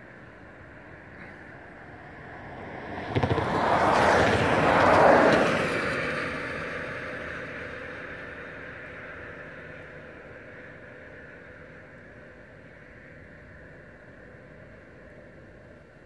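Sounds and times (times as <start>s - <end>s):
vehicle passing by: 2.0s - 8.5s.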